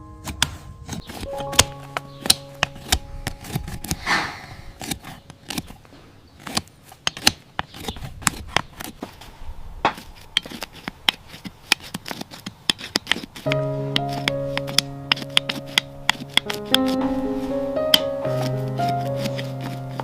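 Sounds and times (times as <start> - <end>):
snips cutting hoof: 0.3 - 5.8, 6.4 - 9.0
scraping stroke on hoof: 1.0 - 14.3, 18.8 - 20.0.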